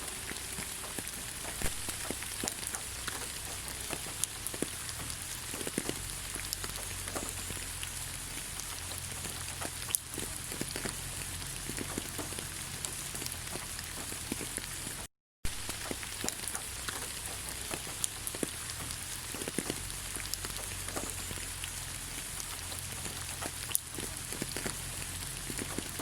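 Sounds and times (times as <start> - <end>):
rain on leaves: 0.0 - 26.0
raindrops ticking: 0.0 - 26.0.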